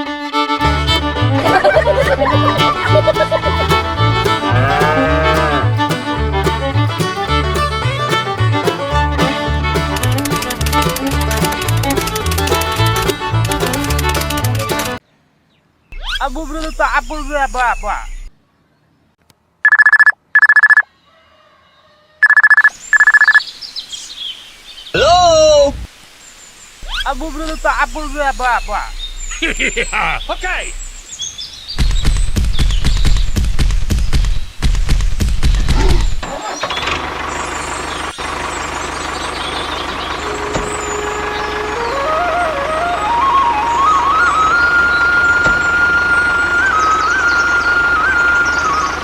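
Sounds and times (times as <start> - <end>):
steady tone: 0.0 - 14.9
telephone ringtone trilling: 19.7 - 20.8, 22.2 - 23.4.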